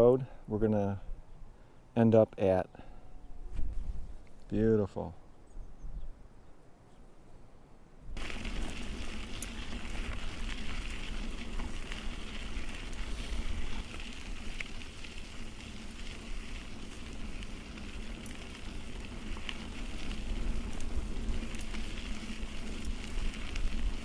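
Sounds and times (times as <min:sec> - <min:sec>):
tyres crackling over grit and stones: 0:08.2 - 0:24.0
small ticks: 0:08.3 - 0:24.0.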